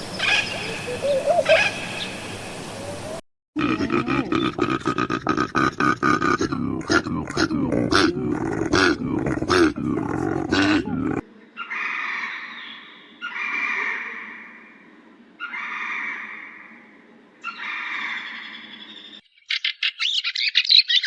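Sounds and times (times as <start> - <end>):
low pulsing animal call: 6.4 - 19.2
drawn-out high animal calls: 10.5 - 19.1.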